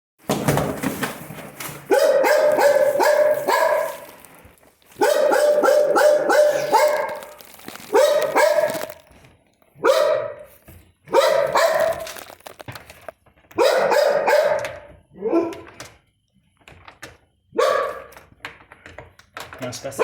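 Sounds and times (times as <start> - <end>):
dog barking high yaps: 1.9 - 4.3, 5.0 - 9.0, 9.8 - 10.5, 11.1 - 12.2, 13.6 - 15.7, 17.6 - 18.1.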